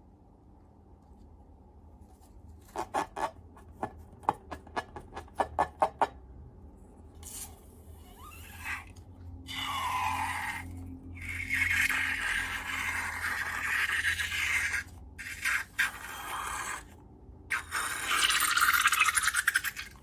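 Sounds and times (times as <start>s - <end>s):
slime scraping and rubbing: 2.0s - 4.1s.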